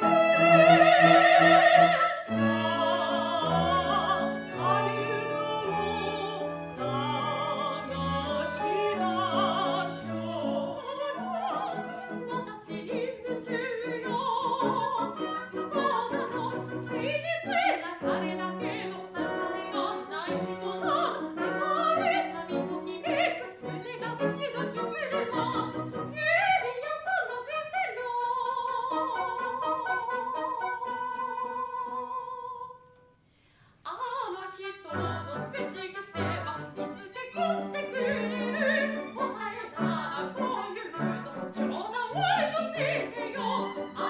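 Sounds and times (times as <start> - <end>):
orchestral accompaniment: 0.0 - 12.3
operatic singing voice with vibrato: 0.0 - 32.9, 33.9 - 44.0.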